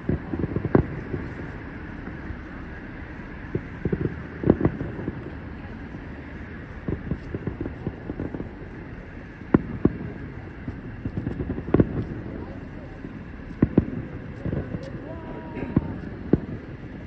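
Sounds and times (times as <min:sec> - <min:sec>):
distant fireworks bursting: 0:00.0 - 0:17.0
wind noise on microphone: 0:00.0 - 0:17.0.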